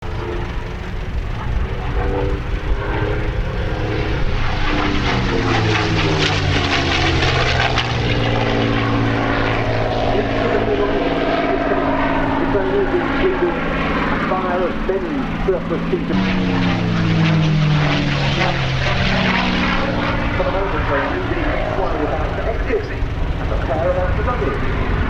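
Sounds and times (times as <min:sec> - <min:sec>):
propeller plane flying past: 0:00.0 - 0:25.0.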